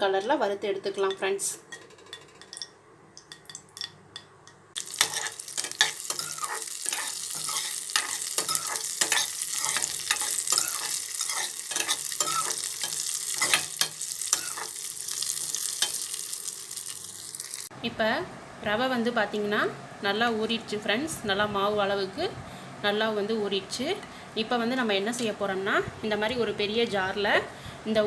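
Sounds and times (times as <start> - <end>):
nuts frying in hot oil: 4.7 - 17.7
spoon scraping a metal pan: 4.8 - 14.8.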